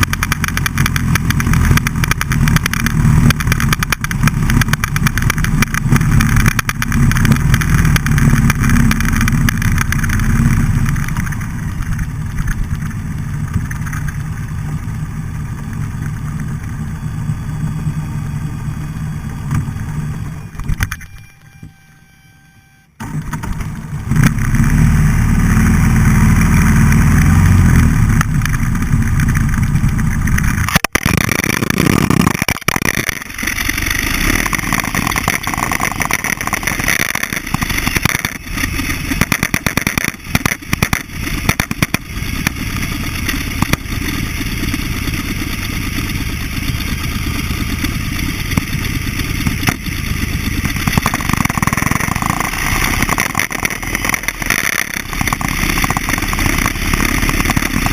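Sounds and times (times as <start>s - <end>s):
motorcycle engine running loud: 0.0s - 21.7s, 23.0s - 57.9s
rough rushing noise: 23.0s - 57.9s.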